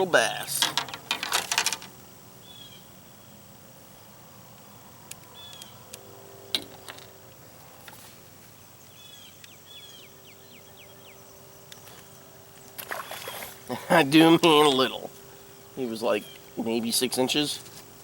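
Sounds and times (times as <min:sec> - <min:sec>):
faint steady hum: 0:00.0 - 0:18.0
sharp clicks and knocks: 0:00.5 - 0:02.0
small bird chirping: 0:02.4 - 0:03.3, 0:05.2 - 0:05.9, 0:08.5 - 0:11.4.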